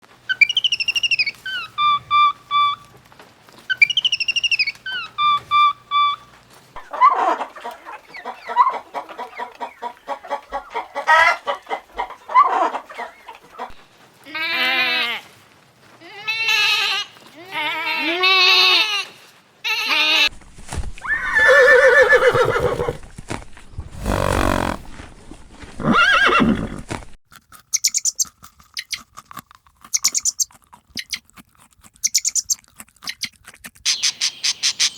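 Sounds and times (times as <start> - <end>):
farm animal calls: 0.3 - 2.9, 21.2 - 23.0, 24.0 - 24.9.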